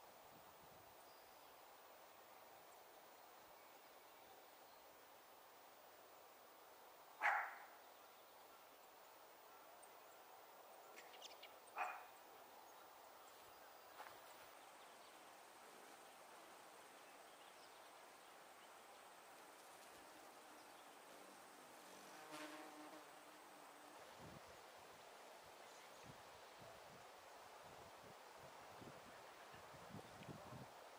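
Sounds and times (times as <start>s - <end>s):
faint high chirps: 0.0s - 15.1s
sharp animal calls: 7.2s - 7.8s, 11.7s - 12.1s.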